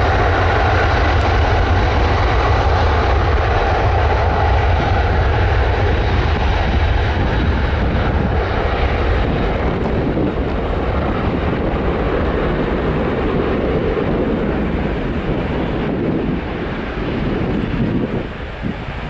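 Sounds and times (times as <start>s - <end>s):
airliner engines at take-off power: 0.0s - 19.0s.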